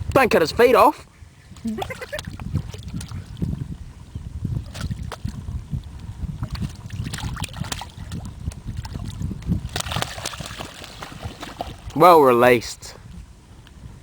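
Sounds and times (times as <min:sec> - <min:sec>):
water slapping against boat hull: 0:01.6 - 0:03.6, 0:04.6 - 0:12.0.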